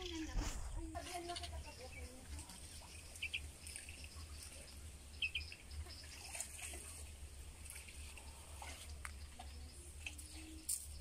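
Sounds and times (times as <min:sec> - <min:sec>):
small bird chirping: 0:01.0 - 0:06.8.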